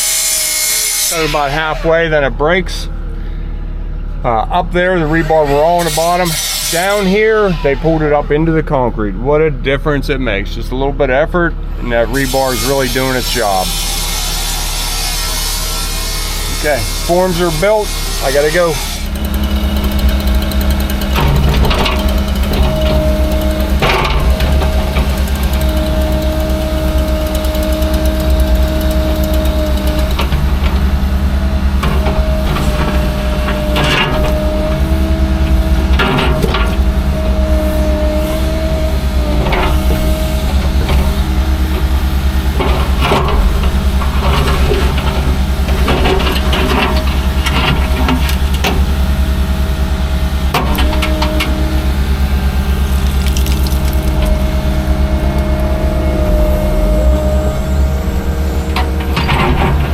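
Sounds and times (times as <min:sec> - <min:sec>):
heavy machine engine whining: 0:00.0 - 0:59.9
knocks and clanks: 0:18.7 - 0:31.1, 0:31.7 - 0:49.0, 0:52.8 - 0:59.9
scraping: 0:52.5 - 0:59.9.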